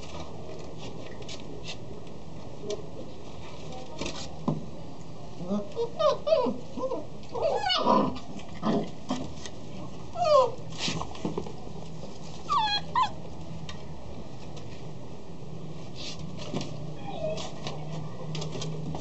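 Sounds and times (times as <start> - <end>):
dogs whining and yipping: 5.8 - 8.1, 10.2 - 10.6, 12.5 - 13.2, 17.0 - 17.5.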